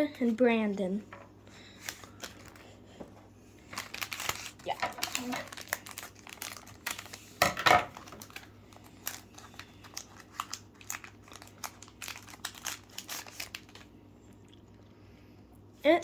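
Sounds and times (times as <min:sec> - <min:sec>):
plastic wrapper crinkling: 0:01.8 - 0:02.8, 0:03.6 - 0:14.0.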